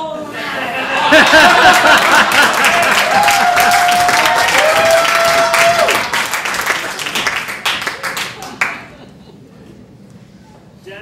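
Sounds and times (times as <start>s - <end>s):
voices cheering: 0.7s - 7.2s
audience applauding: 0.8s - 9.0s.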